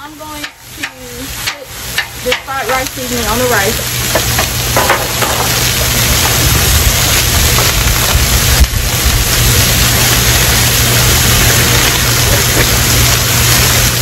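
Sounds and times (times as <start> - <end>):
food sizzling on a griddle: 0.0 - 14.0
low rumble: 1.0 - 14.0.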